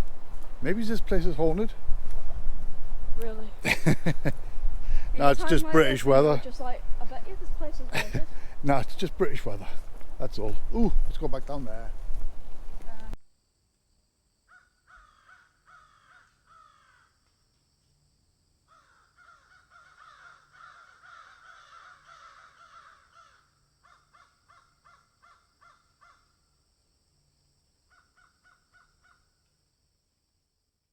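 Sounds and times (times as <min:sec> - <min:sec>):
birds giving harsh calls: 0:00.0 - 0:11.2, 0:18.7 - 0:26.2.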